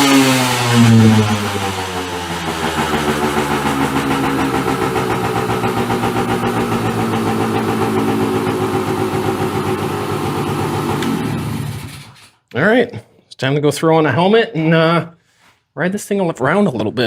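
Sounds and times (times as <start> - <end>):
two-stroke engine idling: 0.0 - 12.1.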